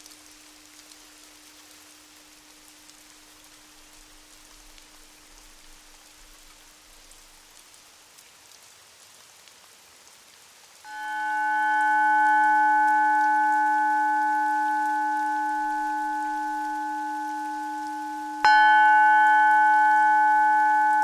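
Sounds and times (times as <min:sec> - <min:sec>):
rain hiss with drop ticks: 0:00.0 - 0:21.0
singing bowl ringing: 0:10.9 - 0:21.0.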